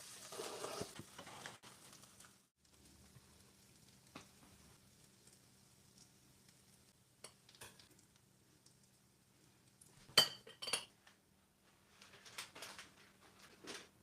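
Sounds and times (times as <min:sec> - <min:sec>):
metal utensils clinking on dishes: 0:10.2 - 0:10.9.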